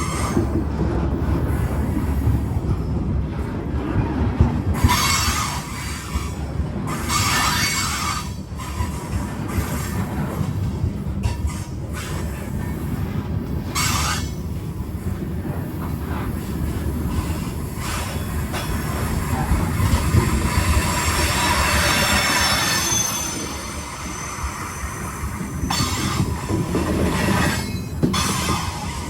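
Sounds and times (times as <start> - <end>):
train rumbling on rails: 0.0 - 29.0
wheels squealing: 19.4 - 29.0.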